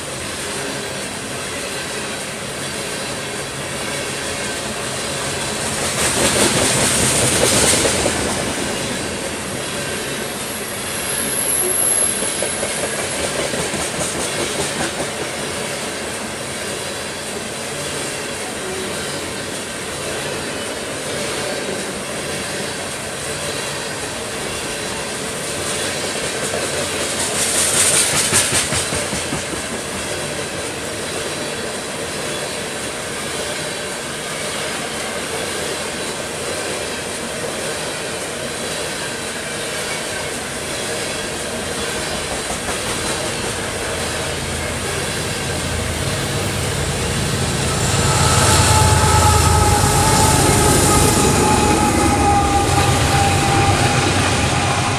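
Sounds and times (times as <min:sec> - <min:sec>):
train wheels rumbling and clattering: 0:00.0 - 0:54.9
high hiss: 0:41.5 - 0:54.9.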